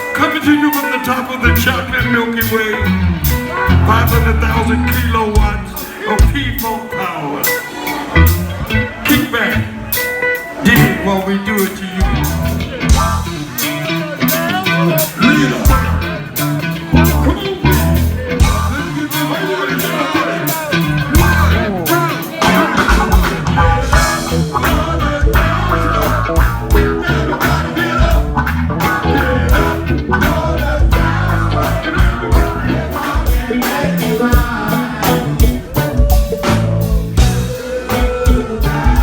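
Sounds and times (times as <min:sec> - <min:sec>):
live funk band playing: 0:00.0 - 0:39.0
person singing: 0:00.0 - 0:39.0
heavy bass: 0:01.4 - 0:06.8, 0:08.1 - 0:09.9, 0:10.7 - 0:39.0
steady drum beat: 0:01.5 - 0:06.9, 0:10.7 - 0:39.0.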